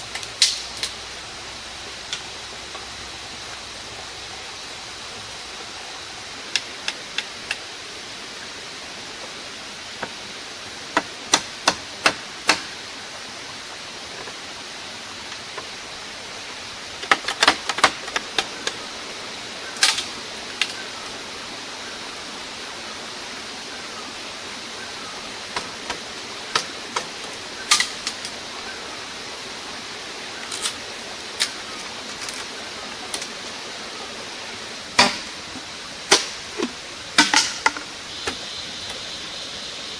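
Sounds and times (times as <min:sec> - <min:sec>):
steady rushing noise: 0:00.0 - 0:39.9.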